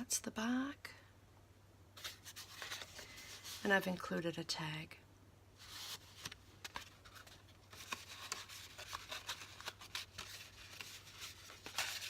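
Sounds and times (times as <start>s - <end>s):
paper pages rustling: 2.0s - 4.0s, 5.6s - 12.0s.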